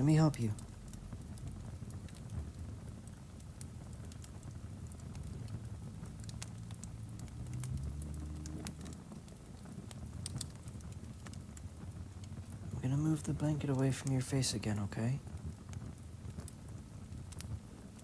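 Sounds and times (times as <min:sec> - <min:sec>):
fire pops and snaps: 0:00.0 - 0:18.0
fireplace crackling: 0:00.0 - 0:18.0
low rumble: 0:04.8 - 0:09.3.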